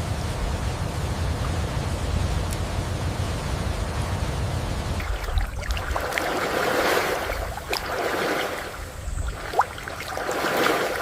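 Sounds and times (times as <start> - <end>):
small drips and clicks: 5.0 - 6.6
water lapping and sloshing: 5.0 - 11.0.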